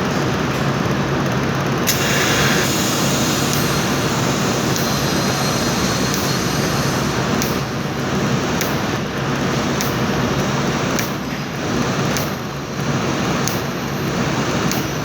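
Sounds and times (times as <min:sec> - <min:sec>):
loud mechanical noise: 0:00.0 - 0:15.0
sharp click: 0:01.9 - 0:07.8, 0:08.6 - 0:08.9, 0:09.8 - 0:10.1, 0:10.9 - 0:11.4, 0:12.1 - 0:12.4, 0:13.4 - 0:13.7, 0:14.6 - 0:15.0.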